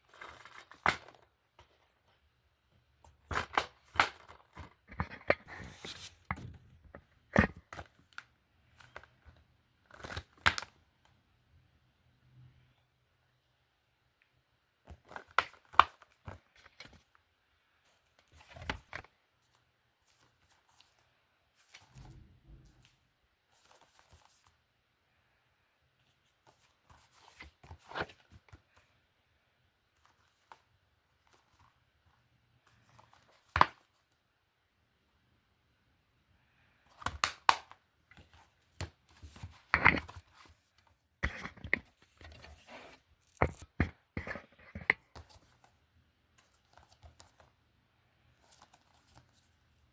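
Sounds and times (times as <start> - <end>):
plastic disc cases clacking: 0.1 - 1.8, 3.2 - 6.6, 14.9 - 17.0, 36.9 - 40.6, 41.2 - 42.7.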